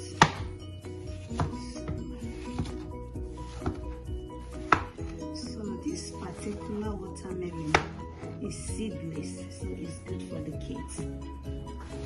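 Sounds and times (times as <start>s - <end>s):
background music: 0.0s - 12.0s
knife chopping on cutting board: 0.1s - 0.5s, 3.5s - 5.0s, 7.6s - 8.0s.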